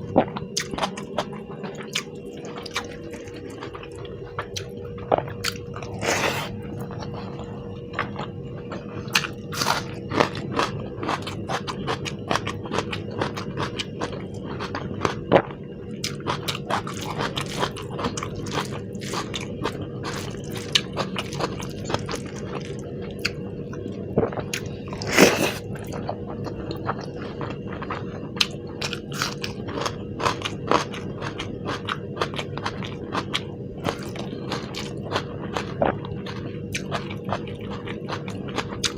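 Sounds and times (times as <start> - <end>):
faint steady hum: 0.0 - 38.9
chewing and biting food: 0.2 - 38.9.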